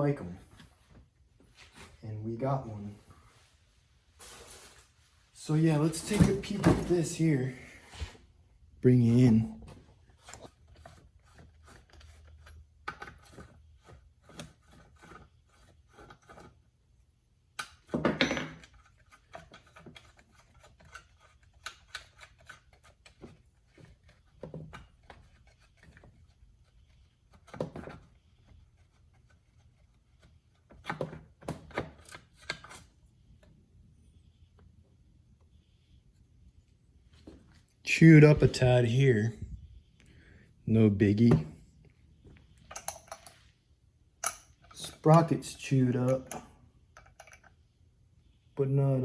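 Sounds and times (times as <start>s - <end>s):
light clicks and scrapes of parts: 10.0s - 16.8s, 18.6s - 33.6s, 42.3s - 43.6s, 44.2s - 47.6s.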